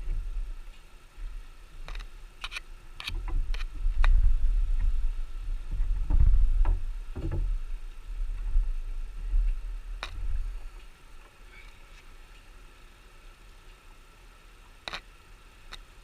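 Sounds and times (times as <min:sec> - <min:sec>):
low rumble of wind noise: 0:00.0 - 0:16.0
wooden hive parts clicking: 0:14.7 - 0:15.1.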